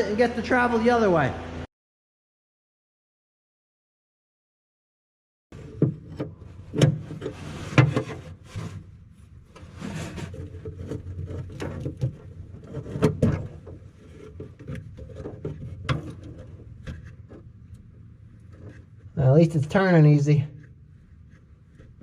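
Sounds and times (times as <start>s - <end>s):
metal scraping and rubbing: 5.6s - 20.0s.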